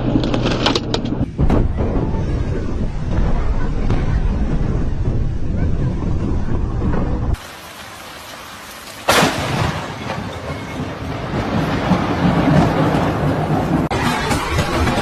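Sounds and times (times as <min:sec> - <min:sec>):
rumbling thunder: 0:00.0 - 0:08.1, 0:09.1 - 0:15.0
sharp thunderclap: 0:01.1 - 0:07.5, 0:09.1 - 0:15.0
rain hissing: 0:07.2 - 0:10.4.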